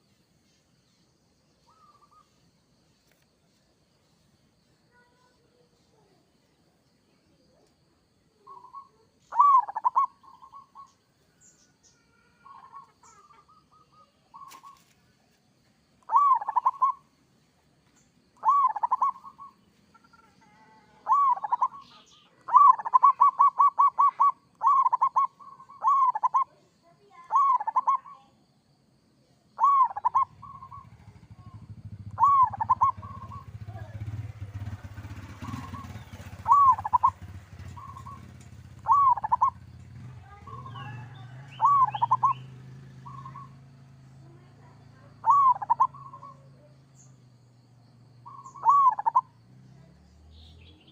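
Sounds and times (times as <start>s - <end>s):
dove cooing: 8.4s - 11.0s, 12.1s - 14.8s, 16.0s - 17.1s, 18.4s - 26.6s, 27.2s - 28.2s, 29.6s - 43.6s, 45.0s - 46.8s, 48.2s - 49.4s
low steady rumble: 29.8s - 50.5s.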